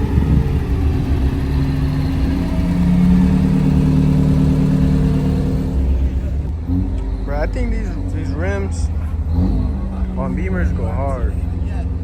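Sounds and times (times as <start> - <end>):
car engine running: 0.0 - 6.5.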